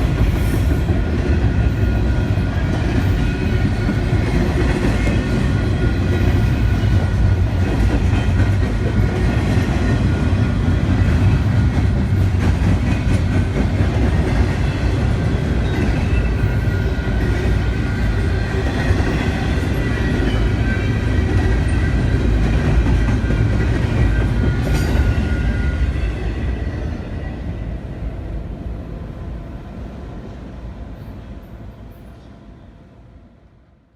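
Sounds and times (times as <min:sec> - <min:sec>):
train wheels clattering over rails: 0:00.0 - 0:26.0.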